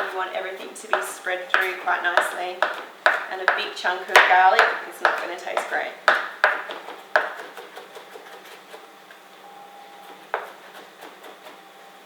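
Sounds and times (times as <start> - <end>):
knife chopping on board: 0.0 - 8.8, 10.0 - 11.6.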